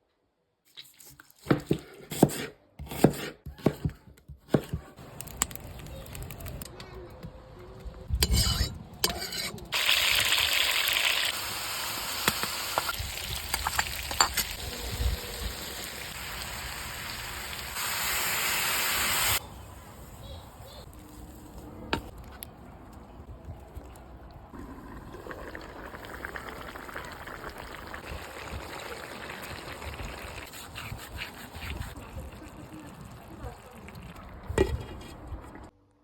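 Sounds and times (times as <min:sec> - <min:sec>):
food sizzling in a pot: 0:09.7 - 0:19.4.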